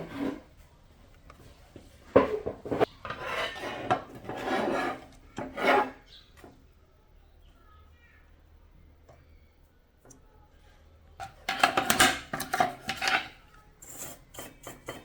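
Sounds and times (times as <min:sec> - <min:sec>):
scraping on a hard surface: 0:00.0 - 0:00.6, 0:02.1 - 0:06.1, 0:11.2 - 0:15.0.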